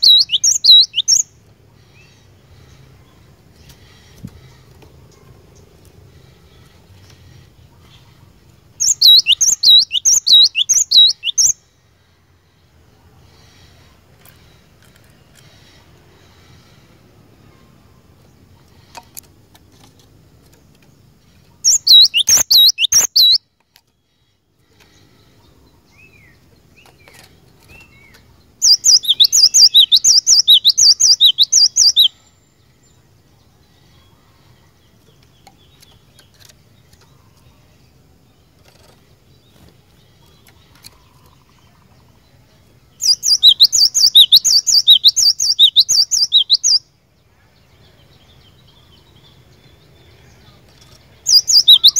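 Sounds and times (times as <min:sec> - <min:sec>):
bird whistling rapid notes: 0:21.7 - 0:23.4.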